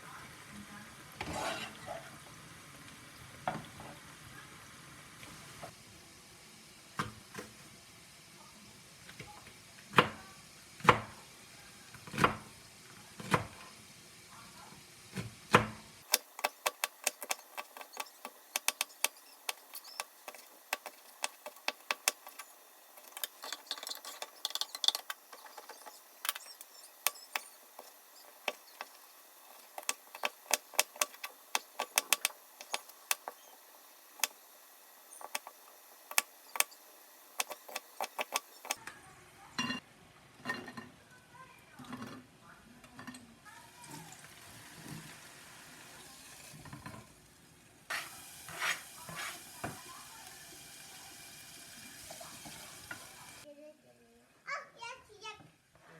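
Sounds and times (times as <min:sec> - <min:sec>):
utensils and dishes clicking: 0:16.0 - 0:34.4, 0:35.1 - 0:38.8.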